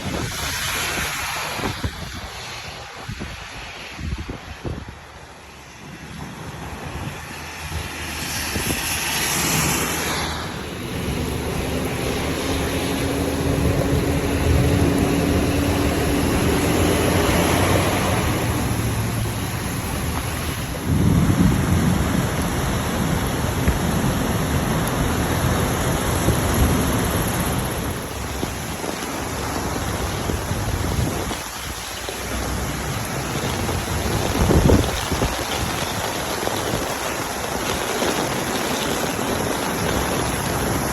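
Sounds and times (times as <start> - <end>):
heavy rain and wind: 0.0 - 40.9
low rumbling: 10.5 - 31.8.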